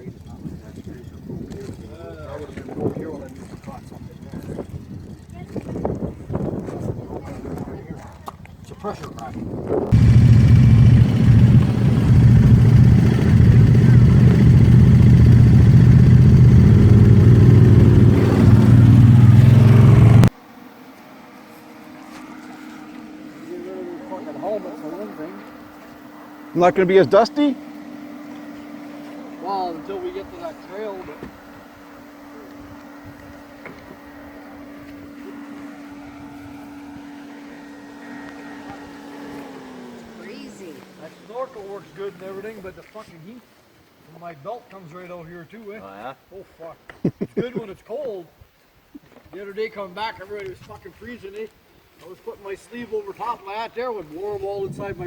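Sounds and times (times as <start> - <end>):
wind noise: 0.0 - 8.7, 54.4 - 55.0
atv engine running: 9.9 - 20.3, 26.5 - 41.8
rumbling ground: 9.9 - 20.3.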